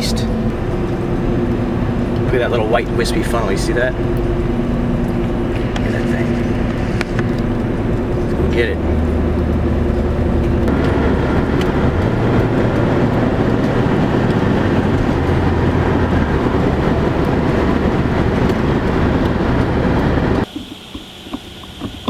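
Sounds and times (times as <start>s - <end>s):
low hum: 0.0s - 22.0s
road and engine noise: 0.0s - 22.0s.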